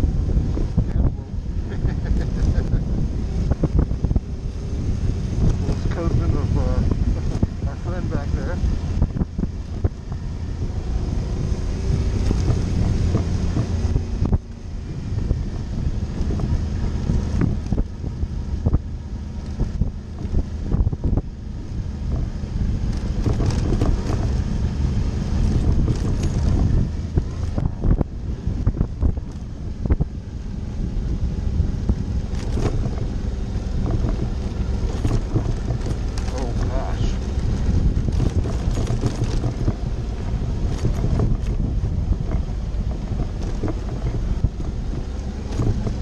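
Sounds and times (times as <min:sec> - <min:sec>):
motorcycle engine running: 0:00.0 - 0:46.0
wind buffeting microphone: 0:00.0 - 0:46.0
sharp knocks and rattles: 0:33.8 - 0:46.0.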